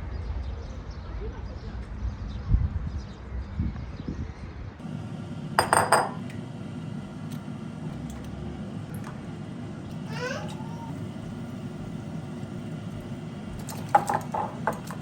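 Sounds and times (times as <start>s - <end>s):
dishes and cutlery clinking: 13.6s - 15.0s.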